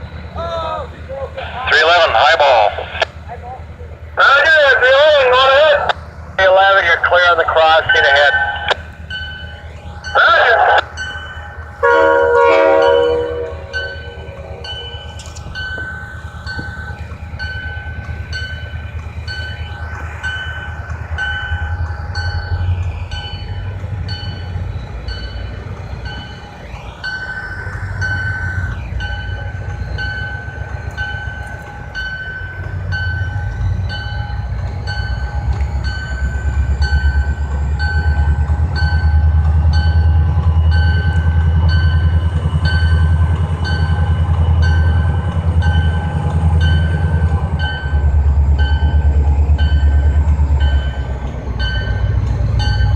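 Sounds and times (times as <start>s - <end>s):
crossing bell ringing: 0.0s - 52.9s
locomotive rumble: 0.0s - 52.9s
train horn blast: 11.8s - 14.4s.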